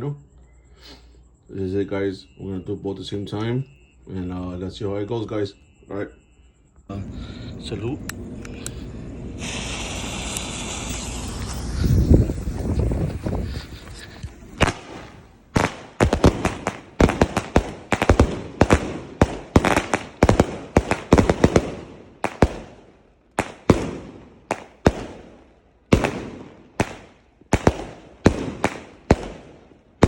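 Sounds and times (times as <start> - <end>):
firework bangs: 9.2 - 30.0.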